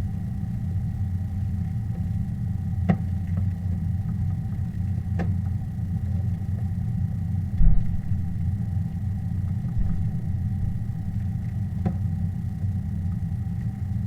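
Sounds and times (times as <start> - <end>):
faint hum: 0.0 - 14.0
low rumble: 7.5 - 11.8.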